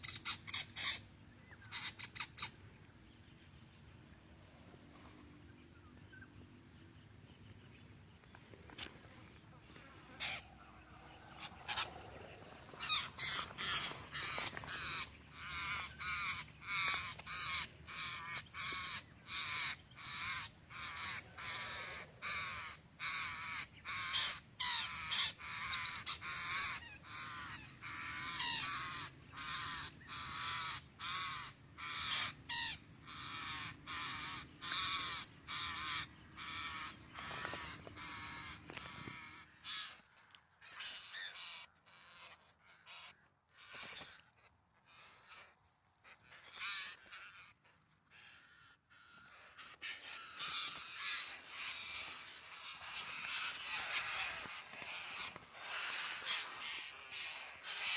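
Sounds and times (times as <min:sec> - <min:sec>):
parakeets squawking: 0:10.2 - 0:10.5, 0:11.3 - 0:12.0, 0:12.7 - 0:40.0, 0:48.2 - 0:57.9.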